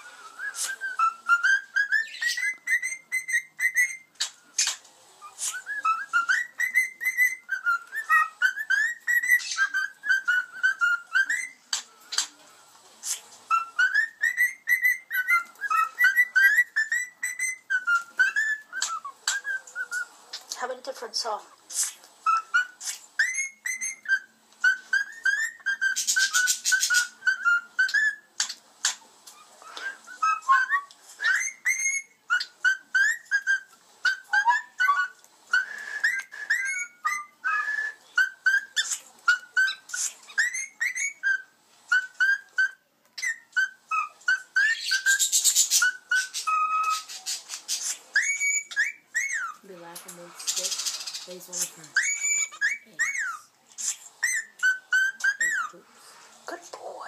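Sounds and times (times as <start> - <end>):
cockatiels whistling: 0.0 - 12.4, 13.0 - 21.1, 21.7 - 55.8
harsh bird chatter: 44.6 - 55.5.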